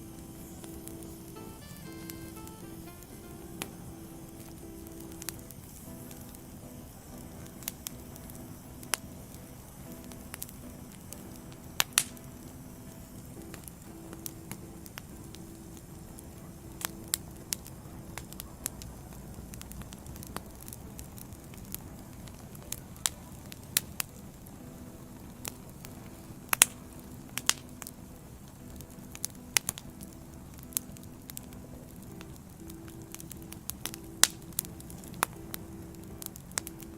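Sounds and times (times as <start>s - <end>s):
flame rushing: 10.0s - 13.6s
firewood popping and snapping: 11.9s - 12.2s, 27.4s - 27.6s.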